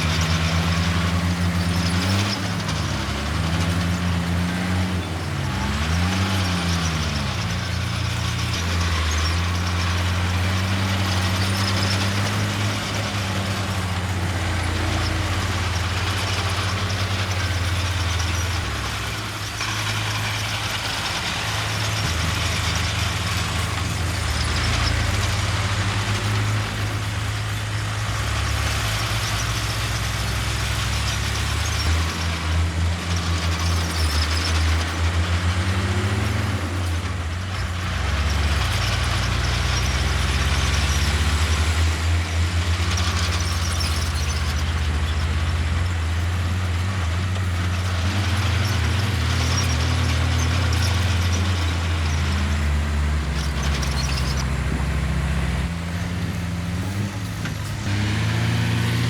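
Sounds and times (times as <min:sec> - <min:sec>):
diesel earthmoving machinery: 0:00.0 - 0:59.0
high-pitched squeals: 0:37.6 - 0:59.0.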